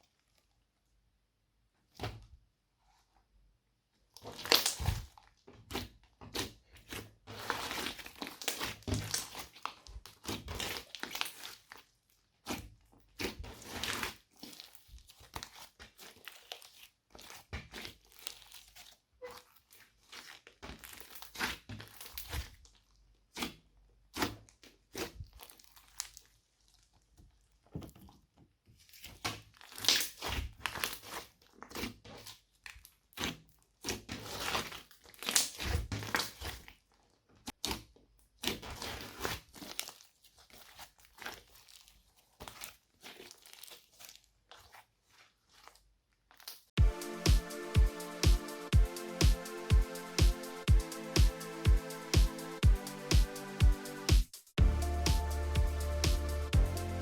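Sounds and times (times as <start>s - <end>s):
slime squishing and crackling: 4.2s - 27.6s, 28.9s - 46.7s.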